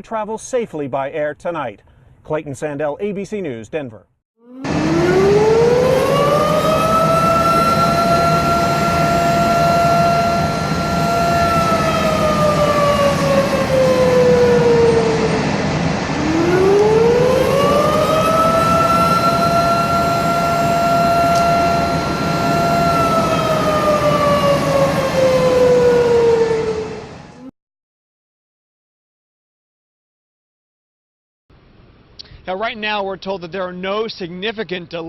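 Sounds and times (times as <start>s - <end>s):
warning siren wailing: 4.4s - 27.5s.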